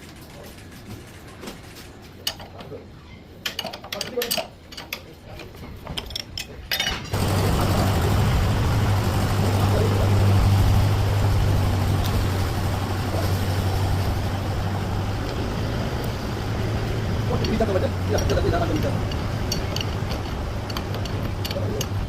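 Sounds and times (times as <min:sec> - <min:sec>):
tractor diesel engine idling: 0:07.2 - 0:22.0
metal tool clinks: 0:17.4 - 0:22.0.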